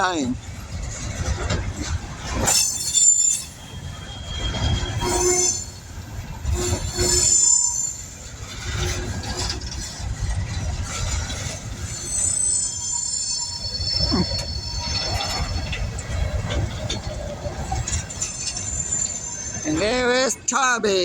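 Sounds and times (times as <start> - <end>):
wheels squealing on rails: 0.3 - 21.0.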